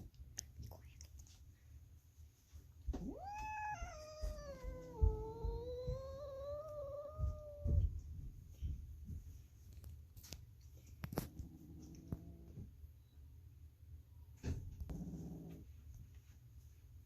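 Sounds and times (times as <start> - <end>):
soft low thumps: 2.8 - 9.5
kitten meowing: 3.0 - 7.9.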